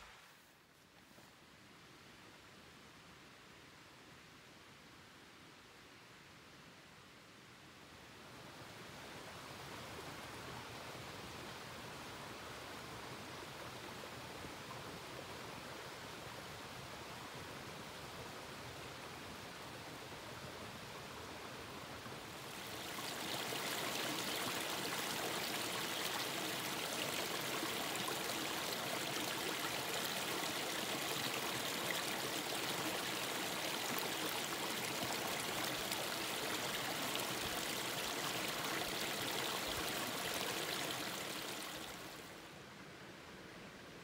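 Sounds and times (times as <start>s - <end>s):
stream water rushing: 18.9s - 42.6s.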